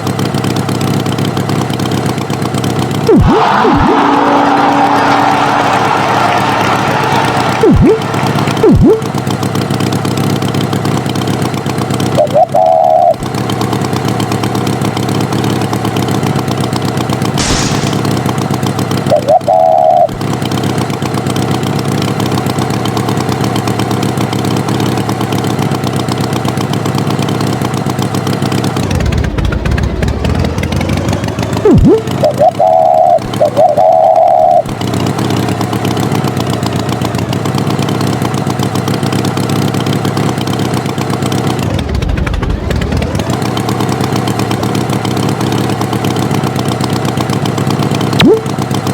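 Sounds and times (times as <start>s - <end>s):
tractor engine running: 0.0s - 48.9s
quick pitch swoops: 3.1s - 4.9s, 7.4s - 9.1s, 17.4s - 18.4s, 31.6s - 34.7s, 48.2s - 48.6s
short loud beeps: 7.6s - 9.0s.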